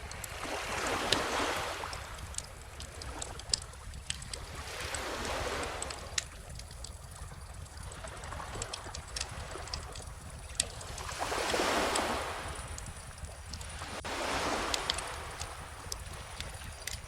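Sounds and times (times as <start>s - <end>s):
wood fire crackling and popping: 0.0s - 17.0s
ocean waves washing in: 7.8s - 17.0s.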